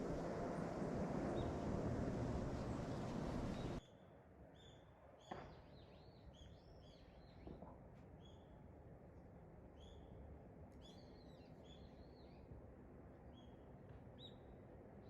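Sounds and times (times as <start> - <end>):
steady rushing noise: 0.0 - 3.8
small birds chirping: 2.6 - 3.8.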